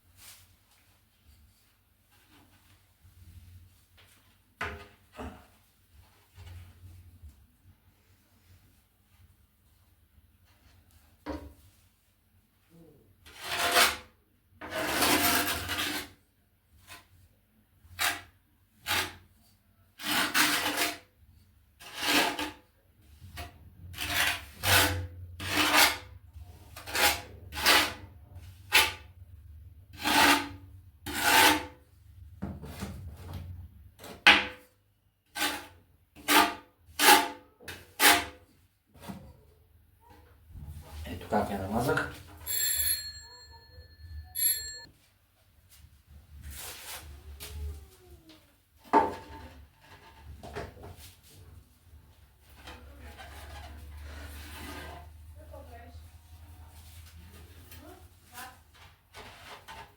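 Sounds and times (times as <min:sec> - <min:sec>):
trowel scraping tile adhesive: 0:13.2 - 0:16.2, 0:17.8 - 0:19.4, 0:20.0 - 0:21.1, 0:21.8 - 0:29.1, 0:29.9 - 0:31.8, 0:35.2 - 0:39.2.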